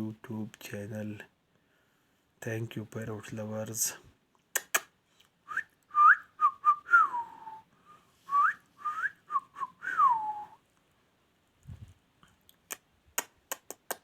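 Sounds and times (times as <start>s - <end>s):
sharp clicks: 4.5s - 4.9s, 12.5s - 14.0s
person whistling: 5.5s - 10.6s.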